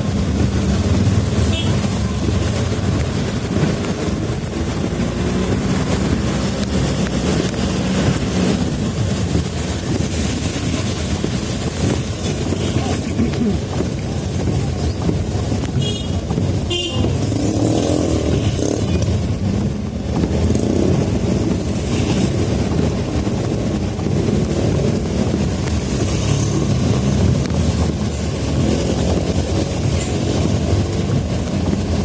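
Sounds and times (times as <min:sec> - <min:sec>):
road traffic passing: 0:00.0 - 0:32.0
car horn toot: 0:01.4 - 0:02.0, 0:15.7 - 0:17.2.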